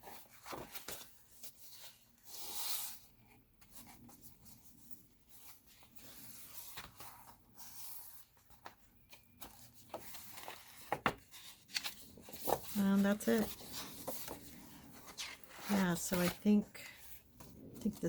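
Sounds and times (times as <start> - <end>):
paper pages turning: 0.0 - 3.0, 5.3 - 18.0.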